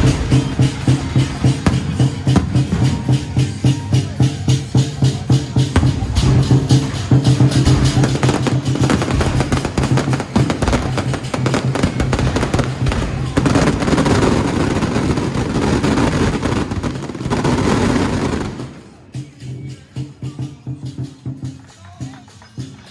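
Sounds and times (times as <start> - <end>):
firecrackers crackling rapidly: 0.0 - 22.9.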